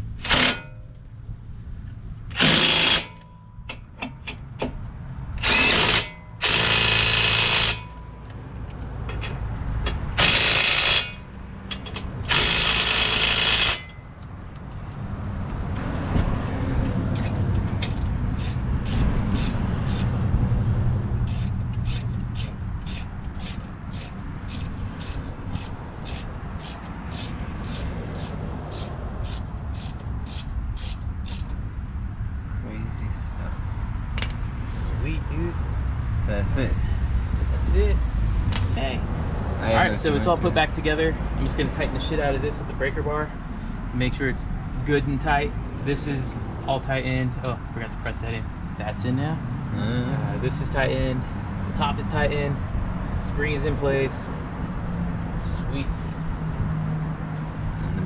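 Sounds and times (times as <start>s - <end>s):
low steady rumble: 0.0s - 6.6s
power tool driving bolts: 0.2s - 0.7s, 2.3s - 3.3s, 5.4s - 8.0s, 9.9s - 14.0s, 17.8s - 20.1s, 21.2s - 31.5s.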